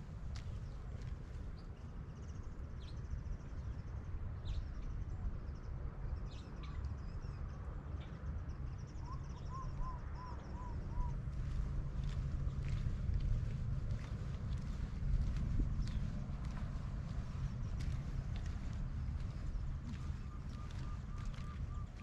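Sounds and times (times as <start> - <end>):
wind rumble on microphone: 0.0 - 22.0
birds calling: 14.1 - 22.0
bird short evenly spaced notes: 17.3 - 22.0.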